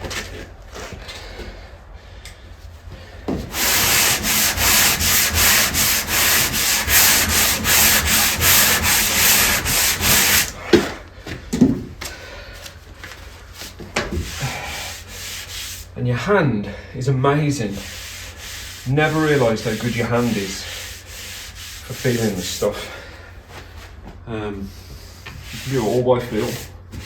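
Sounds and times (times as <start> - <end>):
sandpaper rubbing on wood: 3.5 - 10.6, 14.2 - 15.9, 17.6 - 22.8, 25.4 - 27.0.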